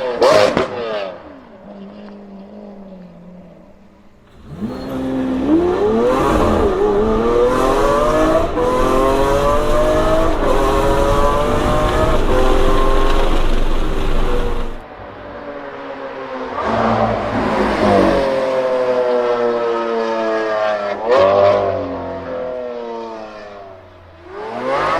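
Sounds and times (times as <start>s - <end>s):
sports car engine accelerating: 0.0s - 14.8s.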